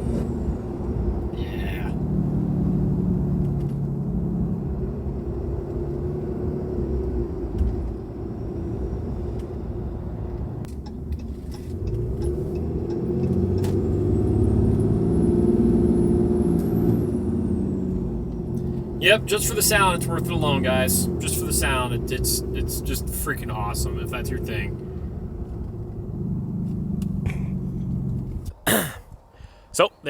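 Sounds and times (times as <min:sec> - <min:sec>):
diesel engine driving: 0:00.0 - 0:29.0
turbocharger whistle: 0:18.6 - 0:25.0.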